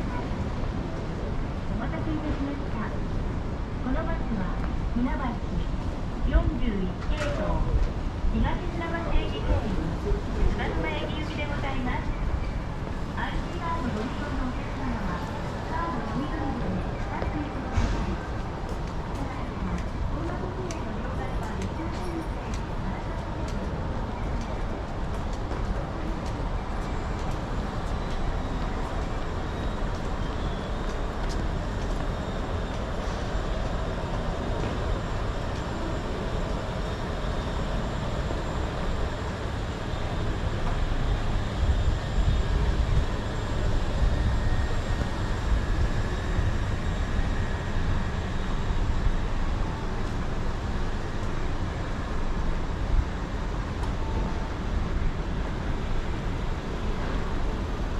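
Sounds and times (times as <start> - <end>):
city traffic rumble: 0.0 - 57.9.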